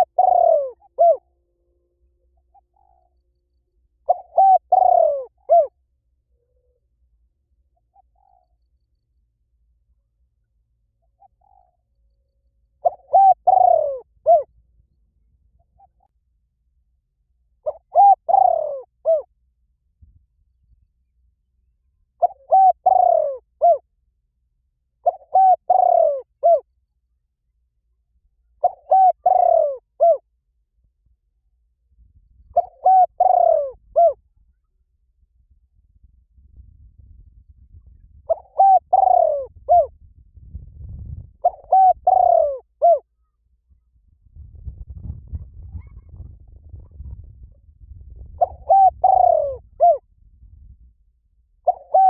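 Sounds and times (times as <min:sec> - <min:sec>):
bird calling: 0:00.0 - 0:01.3, 0:04.0 - 0:05.7, 0:12.8 - 0:14.5, 0:17.6 - 0:19.3, 0:22.2 - 0:23.8, 0:25.0 - 0:26.6, 0:28.6 - 0:30.2, 0:32.6 - 0:34.2, 0:38.3 - 0:39.9, 0:41.4 - 0:43.0, 0:48.4 - 0:50.0, 0:51.6 - 0:52.0
faint low rumble: 0:00.0 - 0:25.3, 0:26.1 - 0:52.0.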